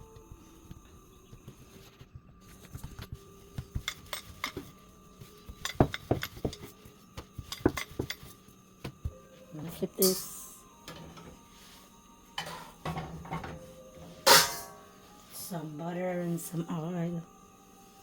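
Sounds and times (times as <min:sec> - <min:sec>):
kitchen utensils clinking on dishes: 0:10.0 - 0:11.3, 0:12.4 - 0:14.9.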